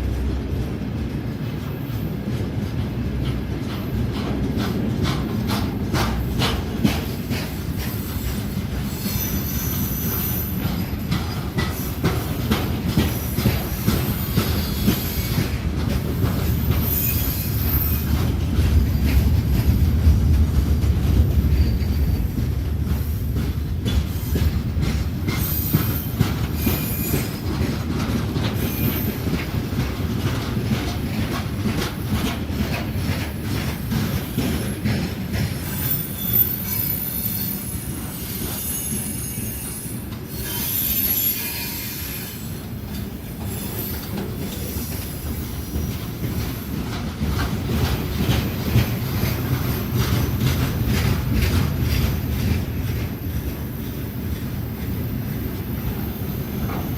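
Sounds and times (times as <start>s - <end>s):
train rumble: 0.0s - 56.9s
wheel squeals: 7.9s - 12.3s, 16.3s - 18.3s, 25.3s - 27.8s, 34.3s - 46.6s
wheel clatter over rails: 10.0s - 37.4s, 42.9s - 55.5s.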